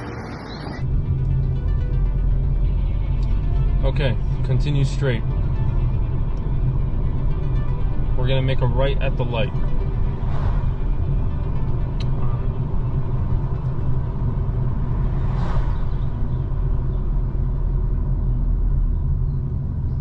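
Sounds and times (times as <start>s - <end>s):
car engine and road noise: 0.0s - 20.0s
brief swish: 10.2s - 10.8s, 15.2s - 16.1s.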